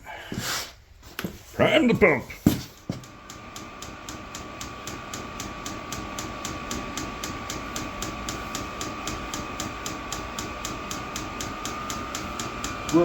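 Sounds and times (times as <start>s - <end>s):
fuel pump ticking: 3.0s - 13.0s.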